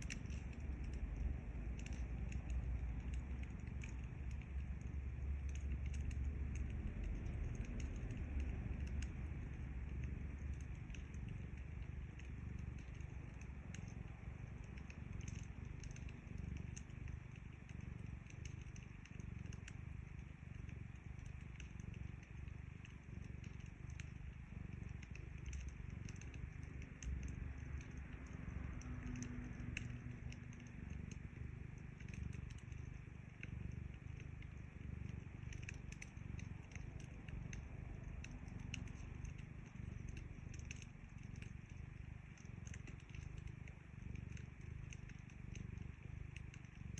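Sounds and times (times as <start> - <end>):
wood fire crackling: 0.0 - 46.8
cat purring: 0.0 - 46.9.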